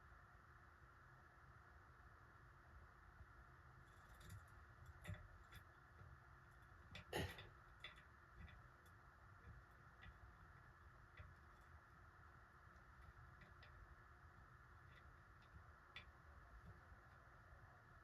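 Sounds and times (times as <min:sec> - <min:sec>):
faint clicks of small parts: 0:03.8 - 0:17.6.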